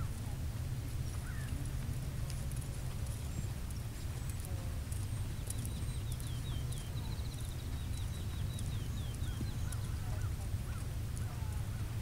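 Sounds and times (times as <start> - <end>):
small bird singing: 3.1 - 11.9.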